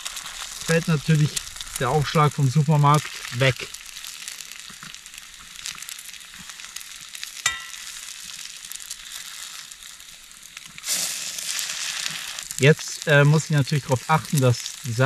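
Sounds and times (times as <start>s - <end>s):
food sizzling in a pan: 0.0s - 15.0s
sharp ringing tap: 7.5s - 7.8s.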